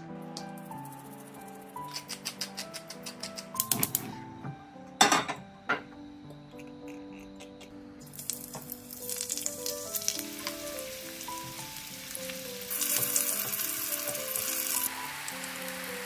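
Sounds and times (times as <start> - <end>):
zucchini sizzling in hot oil: 8.1 - 16.0.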